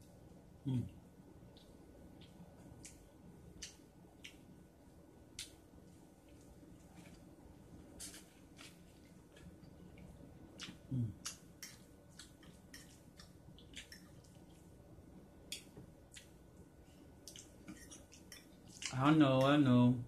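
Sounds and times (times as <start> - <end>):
wet chewing and mouth clicks: 8.0 - 14.7, 15.4 - 16.4, 17.2 - 19.0.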